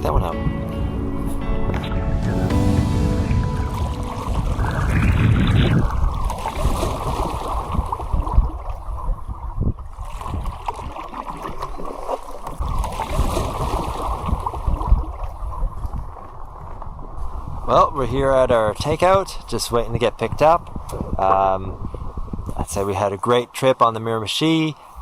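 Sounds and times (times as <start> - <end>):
wind rumbling on microphone: 0.0 - 22.9
water moving around canoe: 1.0 - 18.0.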